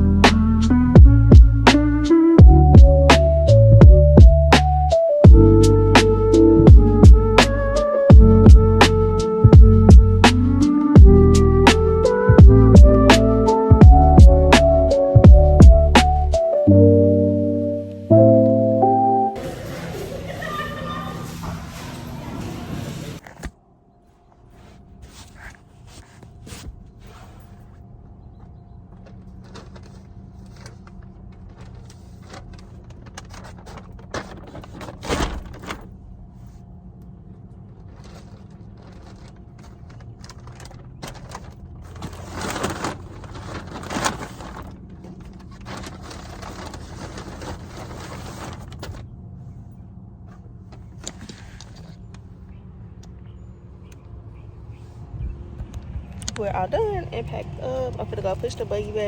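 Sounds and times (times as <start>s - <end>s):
grocery bags rustling: 19.4s - 28.0s, 28.8s - 36.8s, 37.5s - 52.8s
groceries clattering: 28.8s - 36.0s, 37.6s - 49.1s.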